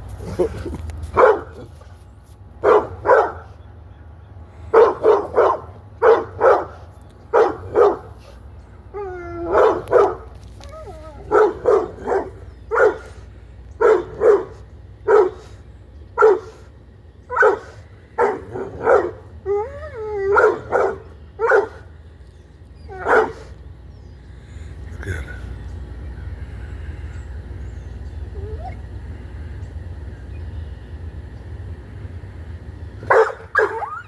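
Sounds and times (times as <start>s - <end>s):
dog barking: 1.1s - 1.7s, 2.6s - 3.6s, 4.7s - 8.2s, 9.5s - 10.3s, 11.3s - 13.2s, 13.8s - 15.5s, 16.2s - 16.6s, 17.3s - 19.2s, 20.3s - 21.8s, 22.9s - 23.5s, 33.1s - 34.0s
dog whining: 8.9s - 12.3s, 18.8s - 21.8s, 28.3s - 28.9s, 33.5s - 34.0s.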